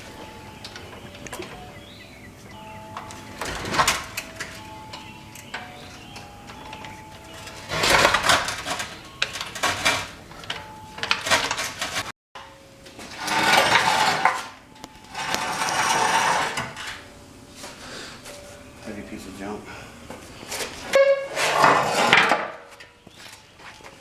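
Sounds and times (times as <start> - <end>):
metal tools clanking: 2.6 - 17.1.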